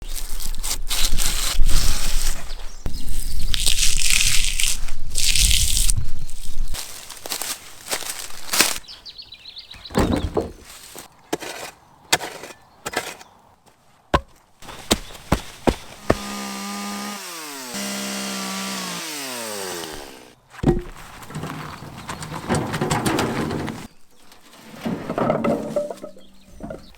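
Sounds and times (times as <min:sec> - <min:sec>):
wood being chopped: 0:14.1 - 0:21.0
chainsaw running: 0:14.8 - 0:20.4.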